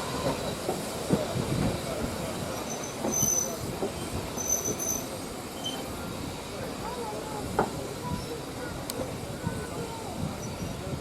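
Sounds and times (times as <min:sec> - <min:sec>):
train rumbling and clanking: 0:00.0 - 0:11.0
train wheels squealing: 0:02.2 - 0:06.0, 0:10.4 - 0:10.9.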